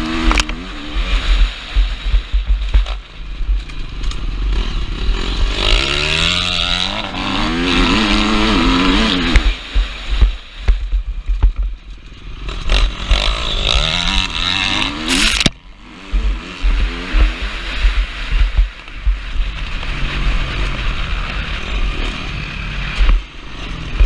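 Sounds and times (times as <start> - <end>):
motorcycle engine revving hard: 0.0 - 3.0, 4.0 - 11.0, 12.2 - 24.0
wind buffeting microphone: 15.0 - 22.0.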